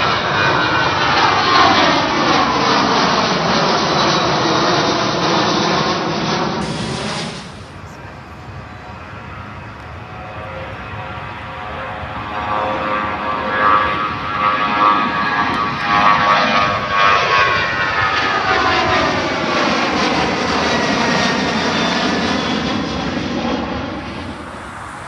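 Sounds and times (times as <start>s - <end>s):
jet engines passing overhead: 0.0s - 25.0s.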